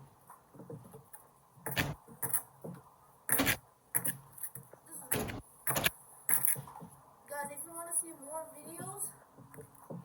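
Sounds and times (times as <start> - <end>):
hard knocks or cracks: 1.6 - 2.4.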